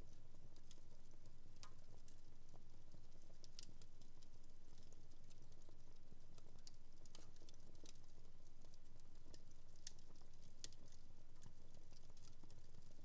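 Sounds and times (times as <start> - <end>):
wood fire crackling: 3.5 - 3.7.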